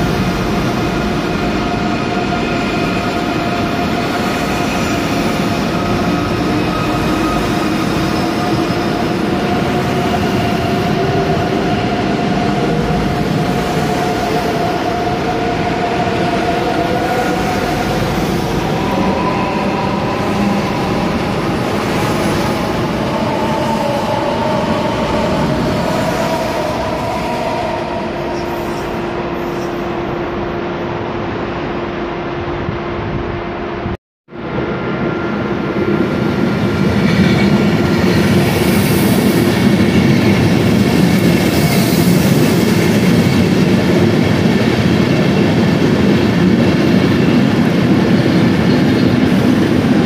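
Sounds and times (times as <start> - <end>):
electric train traction whine: 0.0 - 33.0.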